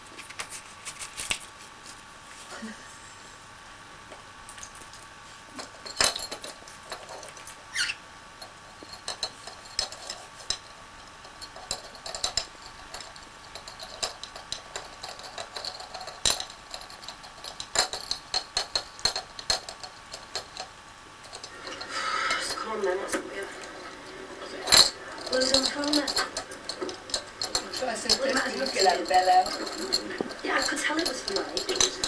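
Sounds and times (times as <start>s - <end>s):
small hard objects clinking: 5.6s - 32.0s
short squeak: 7.7s - 8.0s.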